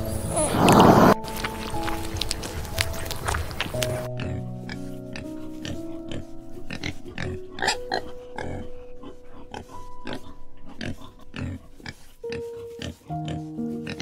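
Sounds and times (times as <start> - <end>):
piano music: 0.0 - 14.0
animal giving rough calls: 0.3 - 1.2, 3.9 - 14.0.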